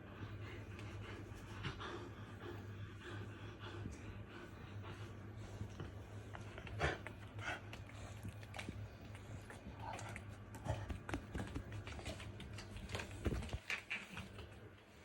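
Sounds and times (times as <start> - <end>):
dog claws clicking on floor: 10.0 - 14.6.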